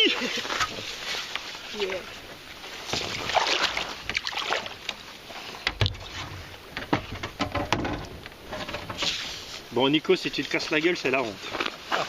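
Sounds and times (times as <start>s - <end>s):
water splashing around a kayak: 0.0s - 12.0s
sharp knocks: 6.8s - 9.0s.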